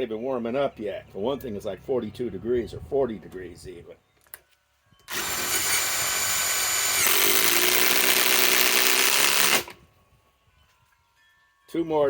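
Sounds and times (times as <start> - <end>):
cordless impact wrench driving screw: 5.1 - 9.8.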